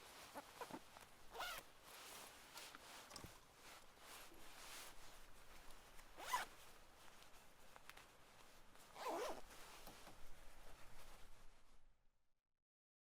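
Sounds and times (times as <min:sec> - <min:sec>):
faint background hiss: 0:00.0 - 0:11.9
zipper pulled: 0:01.3 - 0:01.7, 0:06.2 - 0:06.5, 0:09.0 - 0:09.4.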